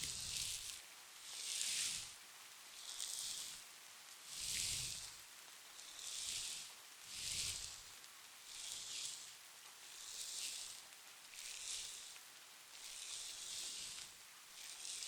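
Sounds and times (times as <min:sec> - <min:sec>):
faint soft rain: 0:00.0 - 0:14.9
wet sponge rubbing microphone: 0:12.9 - 0:15.0.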